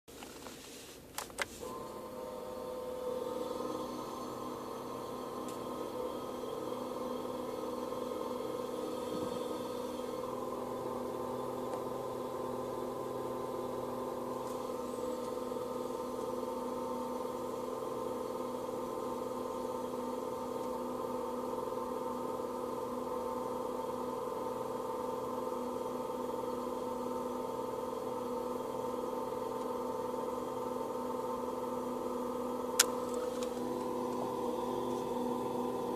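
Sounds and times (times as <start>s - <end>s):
air conditioning humming whine: 0.1s - 35.9s.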